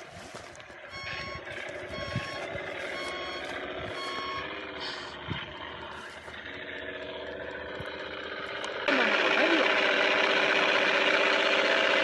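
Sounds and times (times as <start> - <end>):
model truck drive running: 0.0 - 12.0
reversing beeper: 0.8 - 5.2.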